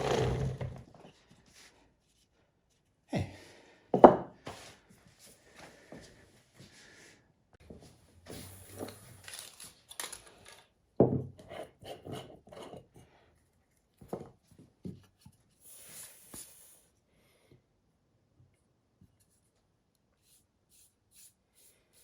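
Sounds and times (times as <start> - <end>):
wood scraping and rubbing: 0.0 - 0.8.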